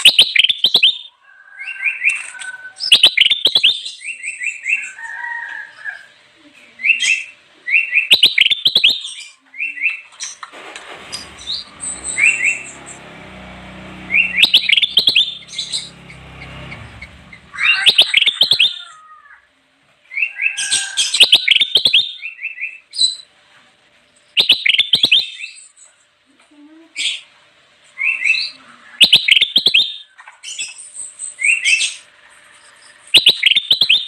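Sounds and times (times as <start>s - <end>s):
bird chirping song: 0.0s - 5.0s, 6.9s - 10.2s, 11.2s - 18.9s, 24.2s - 25.7s, 28.0s - 32.0s, 32.6s - 34.0s
low rumbling noise: 10.6s - 17.8s.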